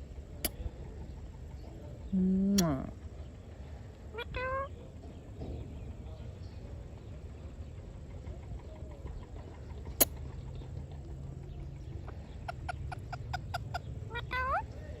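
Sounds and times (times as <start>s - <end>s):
low steady hum: 0.0s - 15.0s
parrot clucking call: 11.8s - 14.8s.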